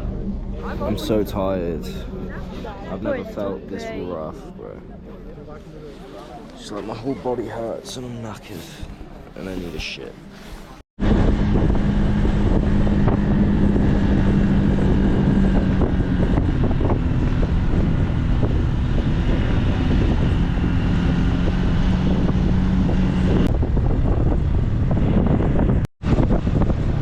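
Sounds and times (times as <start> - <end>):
motorbike engine cruising: 11.0 - 27.0
wind buffeting microphone: 11.0 - 27.0.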